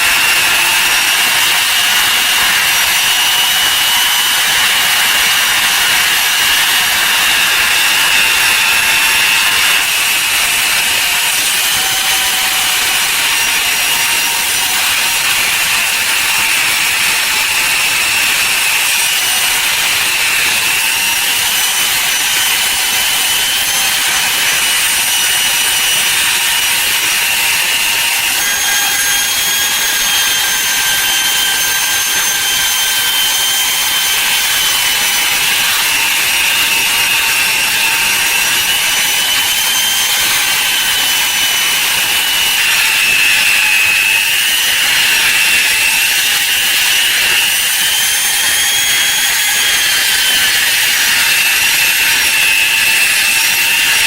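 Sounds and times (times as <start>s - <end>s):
power tool grinding metal: 0.0s - 54.0s.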